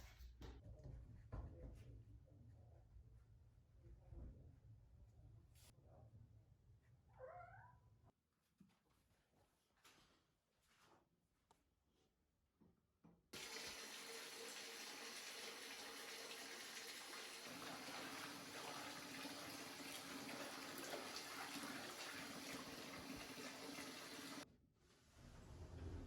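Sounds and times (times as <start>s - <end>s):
water running from tap: 13.4s - 24.4s.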